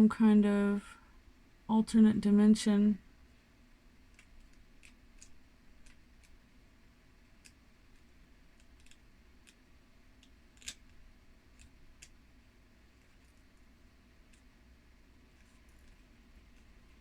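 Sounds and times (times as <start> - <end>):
faint small clicks and taps: 7.4 - 9.6.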